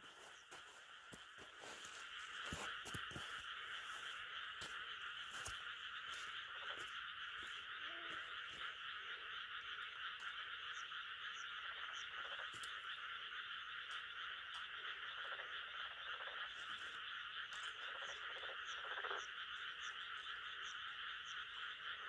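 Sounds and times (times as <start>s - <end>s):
chorus of frogs calling: 0.0s - 22.0s
faint ticks: 9.5s - 13.0s, 13.8s - 15.5s.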